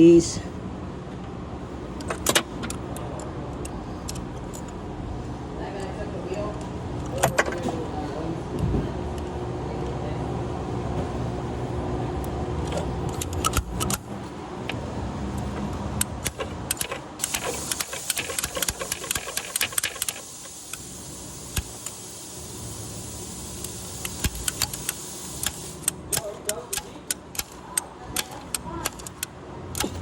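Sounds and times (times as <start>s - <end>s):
metallic clicks of hand tools: 12.6s - 14.0s, 16.0s - 20.8s, 21.5s - 22.0s, 23.6s - 30.0s.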